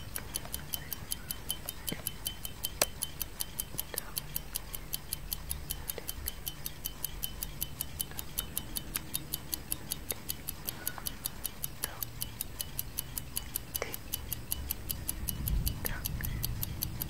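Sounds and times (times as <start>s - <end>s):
clock ticking: 0.0s - 17.0s.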